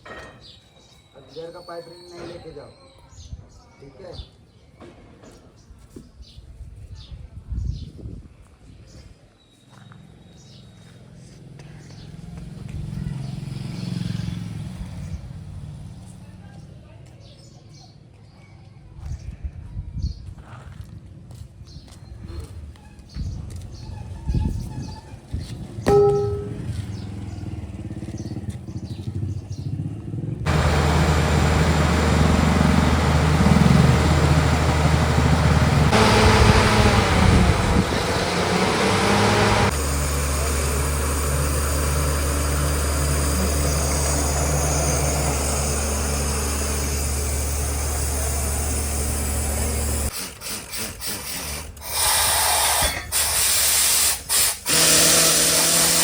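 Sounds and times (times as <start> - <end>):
drilling rig engine running: 30.5 - 56.0
loud hissing bursts: 51.9 - 55.4.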